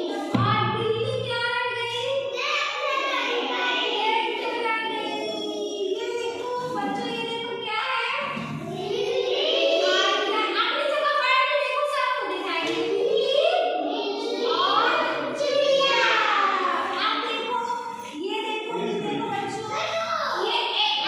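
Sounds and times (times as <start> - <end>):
children singing in chorus: 2.4 - 7.0, 8.2 - 10.3, 13.8 - 17.0.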